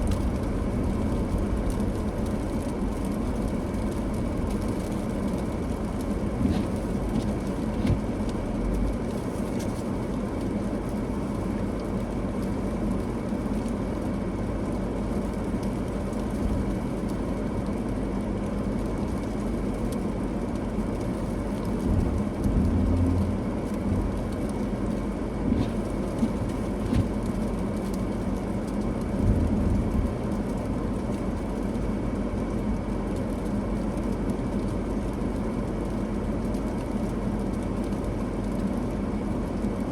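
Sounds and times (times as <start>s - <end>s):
car engine and tyres rumbling: 0.0s - 39.9s
car bumps: 6.4s - 8.1s, 25.5s - 27.2s.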